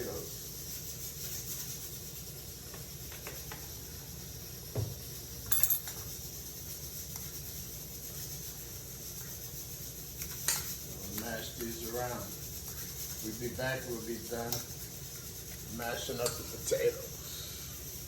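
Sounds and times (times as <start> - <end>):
fork mashing potatoes: 6.0 - 17.2.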